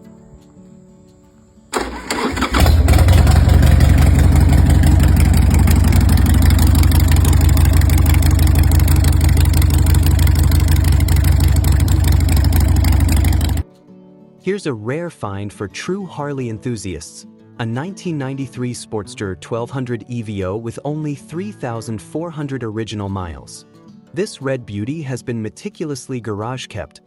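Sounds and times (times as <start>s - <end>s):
electric starter cranking: 1.8s - 7.3s, 8.2s - 13.6s
motorcycle engine running: 1.8s - 13.6s.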